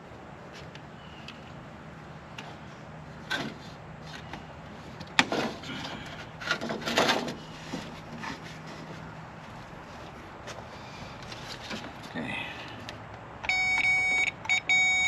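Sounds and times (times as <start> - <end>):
steady low hum: 0.0 - 15.0
handling scrapes and knocks: 3.2 - 12.2.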